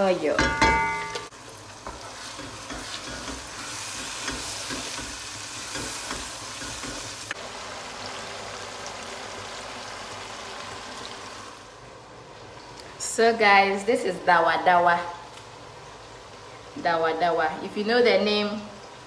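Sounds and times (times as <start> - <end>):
paste sizzling in hot oil: 1.4 - 8.2.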